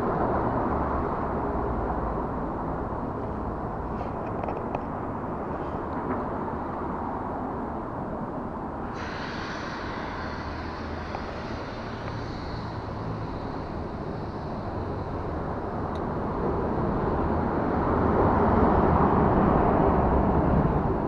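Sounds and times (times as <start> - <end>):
road traffic rumble: 0.0 - 21.0
high hiss: 8.9 - 15.9.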